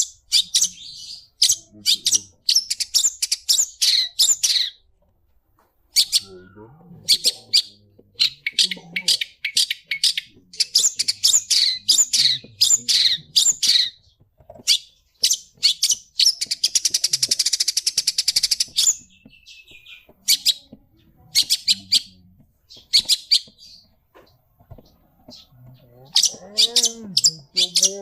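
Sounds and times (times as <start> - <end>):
fast bird trill: 7.1 - 14.0, 26.1 - 28.0
bird singing chirps and whistles: 14.8 - 20.6.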